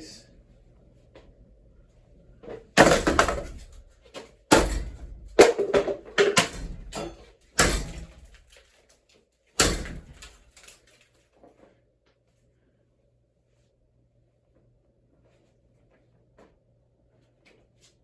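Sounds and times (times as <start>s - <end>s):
hard pieces knocking and clattering: 2.6s - 8.8s, 9.6s - 11.0s.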